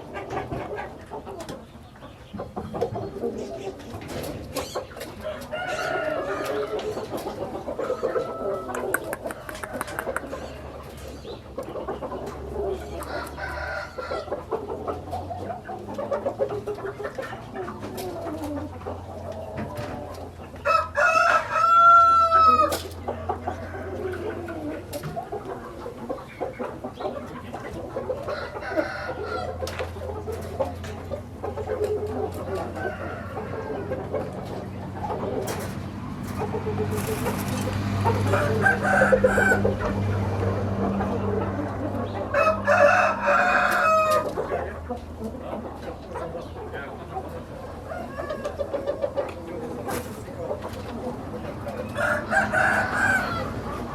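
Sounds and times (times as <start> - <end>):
roosters clucking and calling: 0.0 - 53.9
rooster crowing: 5.3 - 6.9, 13.0 - 14.3, 20.6 - 22.7, 38.1 - 39.8, 42.3 - 44.4, 51.9 - 53.7.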